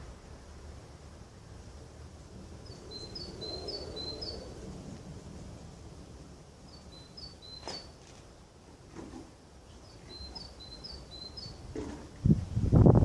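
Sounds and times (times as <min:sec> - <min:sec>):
songbird two-note song: 0:02.6 - 0:11.7.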